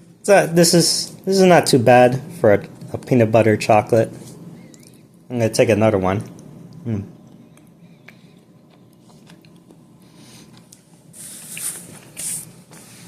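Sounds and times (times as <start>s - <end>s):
short hissy sounds: 11.1s - 13.0s.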